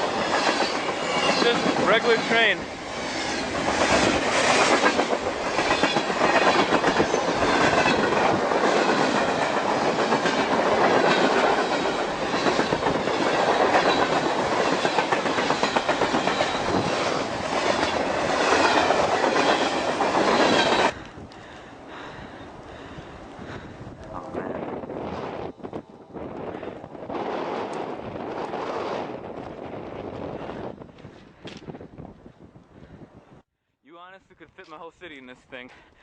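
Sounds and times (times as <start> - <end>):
freight train rolling past: 0.0 - 31.0.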